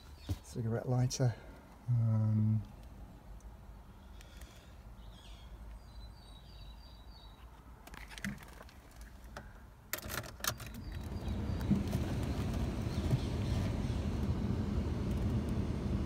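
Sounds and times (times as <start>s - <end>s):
faint birds chirping: 0.0s - 8.3s, 10.5s - 15.2s
sharp clicks and rattles: 7.8s - 14.4s.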